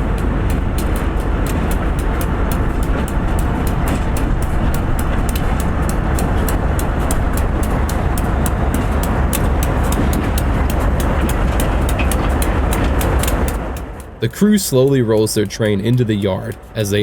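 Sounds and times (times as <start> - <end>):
diesel locomotive rumble: 0.0 - 17.0
quick even ticking: 0.0 - 17.0.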